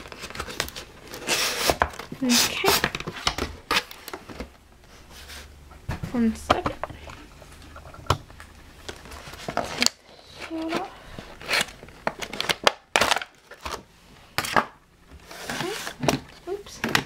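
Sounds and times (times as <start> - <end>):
packaging crackling and crinkling: 0.0 - 4.6, 8.3 - 14.6.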